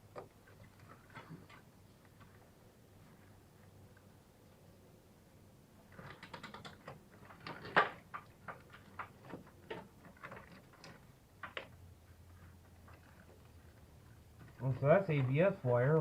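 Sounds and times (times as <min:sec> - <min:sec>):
wiring harness clicks and rattles: 0:05.9 - 0:16.0.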